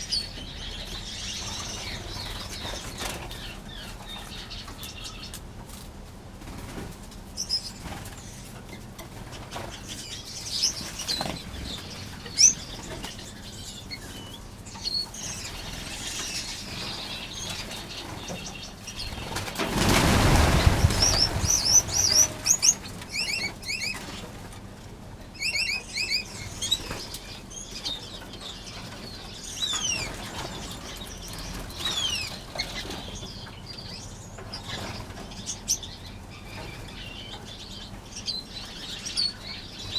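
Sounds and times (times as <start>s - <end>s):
finches chirping and calling: 0.0s - 5.4s, 7.4s - 24.4s, 25.3s - 39.9s
wings flapping: 16.8s - 24.6s.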